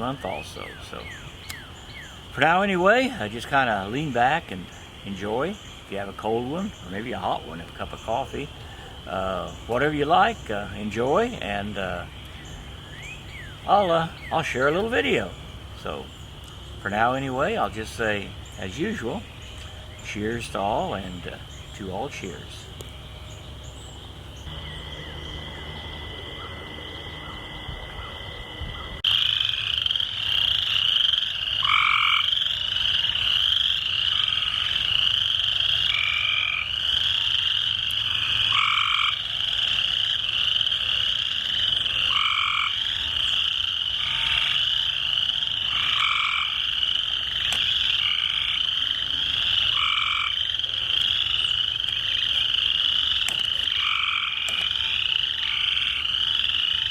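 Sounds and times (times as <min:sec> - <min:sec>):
frogs and toads trilling: 0:00.0 - 0:56.9.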